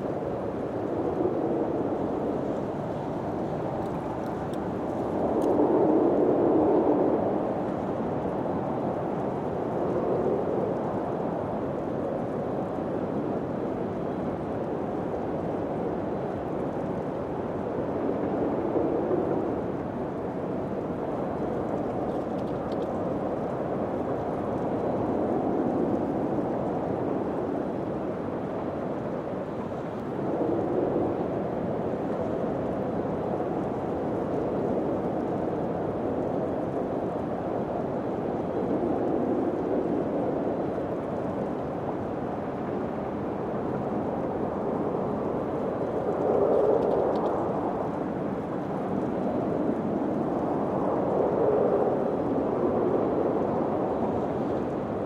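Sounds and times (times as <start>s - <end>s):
wind rushing in gusts: 0.0s - 55.0s.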